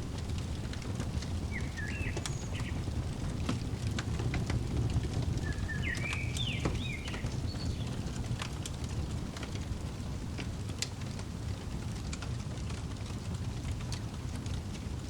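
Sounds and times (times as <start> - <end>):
fireplace crackling: 0.0 - 15.0
bird whistling: 1.5 - 2.8, 5.4 - 8.1.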